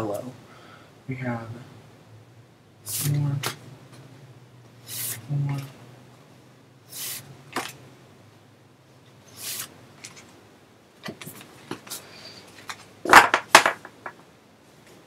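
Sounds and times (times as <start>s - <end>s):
stiff cards rustling and tapping: 11.0s - 14.2s.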